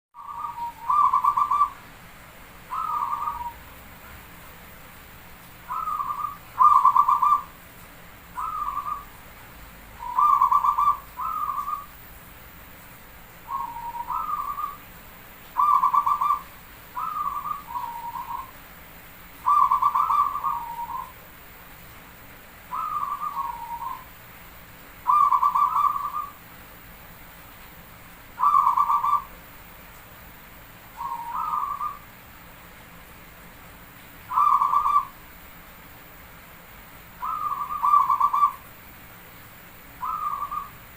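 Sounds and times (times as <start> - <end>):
dove cooing: 0.2 - 1.9, 2.7 - 3.7, 5.7 - 7.6, 8.4 - 9.1, 10.0 - 11.9, 13.5 - 14.8, 15.5 - 18.5, 19.4 - 21.2, 22.7 - 24.1, 25.0 - 26.4, 28.4 - 29.3, 31.0 - 32.0, 34.3 - 35.2, 37.2 - 38.7, 40.0 - 40.8.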